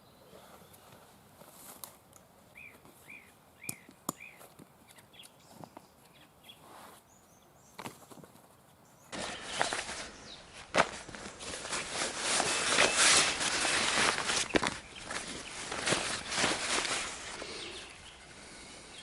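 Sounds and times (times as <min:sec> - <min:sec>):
rustling crunching noise: 0:00.4 - 0:03.2, 0:07.7 - 0:18.7
bird chirping: 0:02.5 - 0:07.8, 0:08.8 - 0:19.0.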